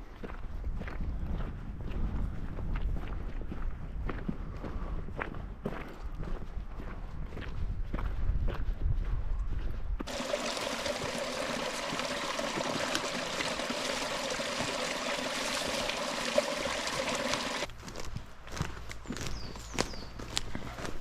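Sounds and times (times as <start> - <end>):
river water rushing: 10.1 - 17.7.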